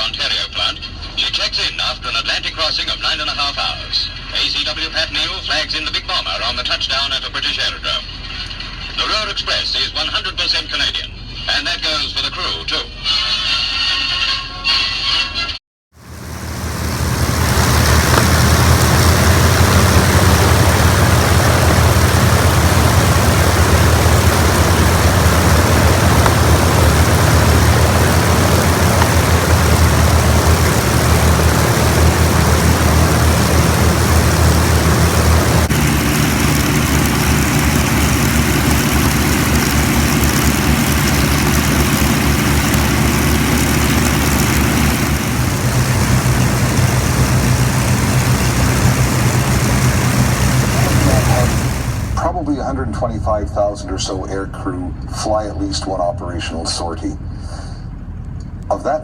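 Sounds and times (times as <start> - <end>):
piston aircraft engines droning: 16.0 - 58.9.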